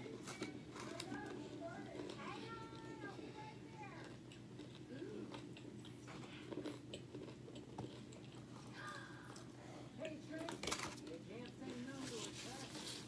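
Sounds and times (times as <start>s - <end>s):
person chewing crunchy food: 0.0s - 3.3s, 3.9s - 10.2s.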